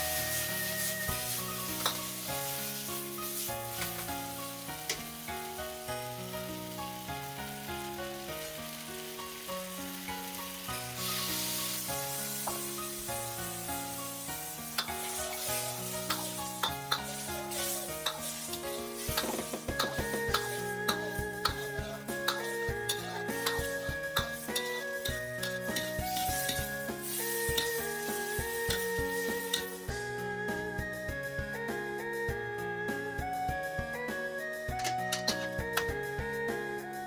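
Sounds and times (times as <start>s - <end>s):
food sizzling in a pan: 0.0s - 32.2s, 33.0s - 37.0s
piano-like background music: 0.0s - 37.0s
spatula scraping and knocking: 16.1s - 21.6s.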